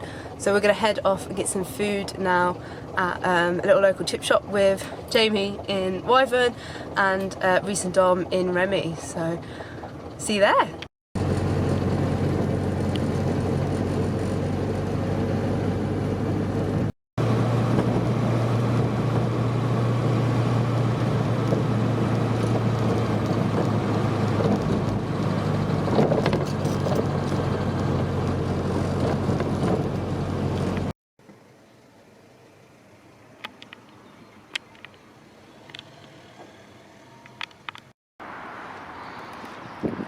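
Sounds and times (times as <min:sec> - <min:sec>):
road noise: 0:00.0 - 0:40.0
car engine droning: 0:11.2 - 0:34.2, 0:34.9 - 0:39.1.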